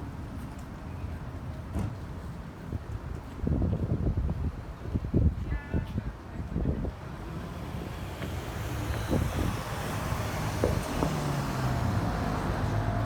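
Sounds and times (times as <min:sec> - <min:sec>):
city street traffic: 0:00.0 - 0:13.0
vehicle engine approaching: 0:07.1 - 0:13.0.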